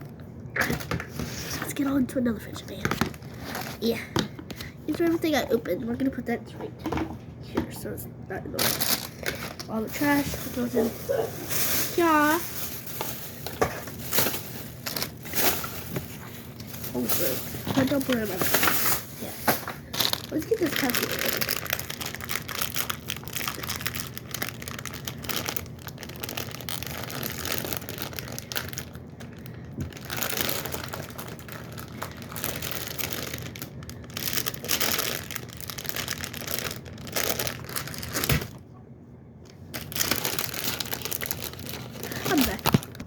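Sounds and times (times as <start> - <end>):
plastic packaging crinkling: 8.5 - 38.6, 39.6 - 43.0.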